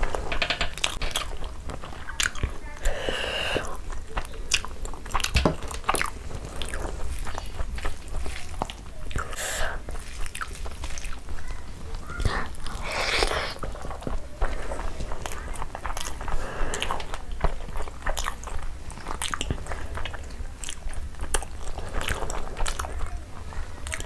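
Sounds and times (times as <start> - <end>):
chewing with wet smacks: 0.0 - 24.0
hand squishing rice on a plate: 0.0 - 24.0
sharp mouth clicks: 12.2 - 14.0.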